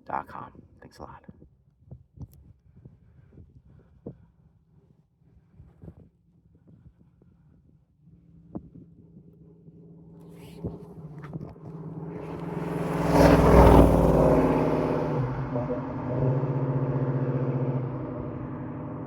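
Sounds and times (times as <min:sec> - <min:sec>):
car engine accelerating: 0:09.6 - 0:19.0.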